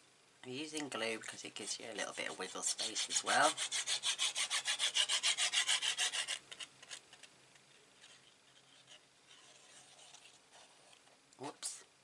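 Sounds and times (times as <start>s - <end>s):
glue scrubbed across cardstock: 2.0s - 6.4s, 8.0s - 10.8s.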